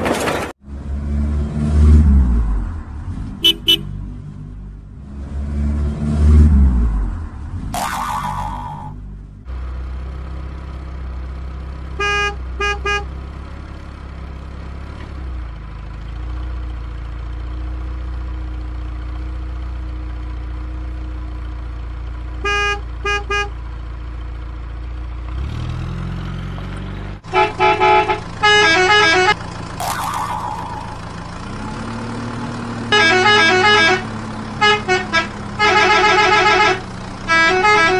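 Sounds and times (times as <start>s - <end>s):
low vehicle engine rumble: 0.0s - 37.9s
horn tooting: 3.4s - 4.0s, 12.0s - 13.2s, 22.4s - 23.6s, 27.3s - 29.4s, 32.9s - 37.9s.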